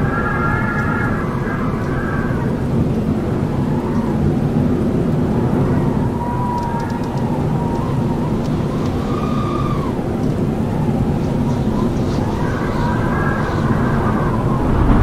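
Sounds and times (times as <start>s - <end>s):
howling wind: 0.0s - 15.0s
high whistling tone: 11.0s - 15.0s.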